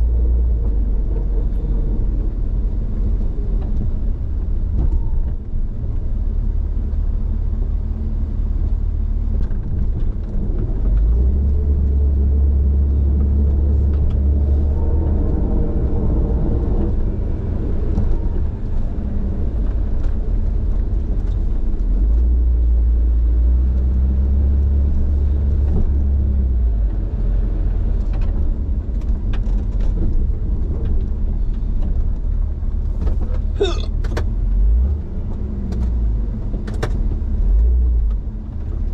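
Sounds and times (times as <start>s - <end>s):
vehicle engine rumbling: 0.0s - 38.9s.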